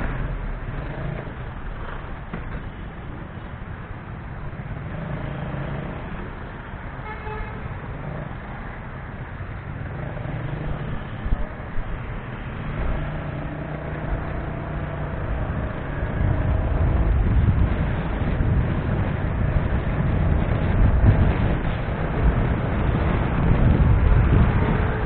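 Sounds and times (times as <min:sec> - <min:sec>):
road traffic engines: 0:00.0 - 0:25.0
car horn toot: 0:07.0 - 0:07.6.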